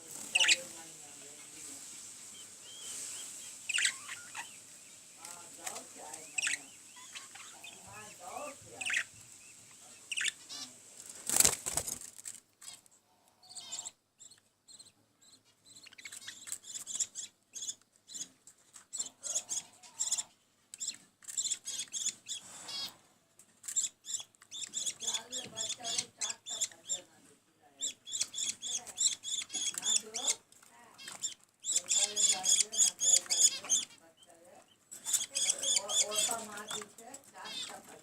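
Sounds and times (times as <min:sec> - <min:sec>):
wings fluttering: 0:00.0 - 0:12.9, 0:28.1 - 0:34.0
bird chicks chirping: 0:00.0 - 0:38.0.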